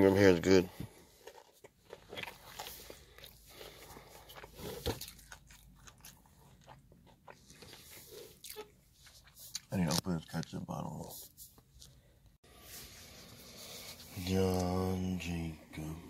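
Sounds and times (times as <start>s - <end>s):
person chewing crunchy food: 0.9s - 10.4s.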